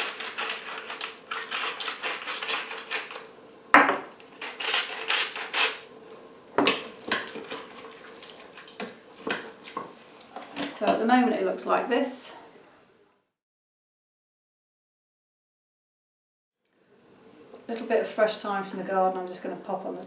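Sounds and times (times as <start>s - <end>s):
pepper grinder clicking: 0.0s - 3.3s
utensil scraping metal pot: 0.0s - 3.3s, 4.3s - 5.9s.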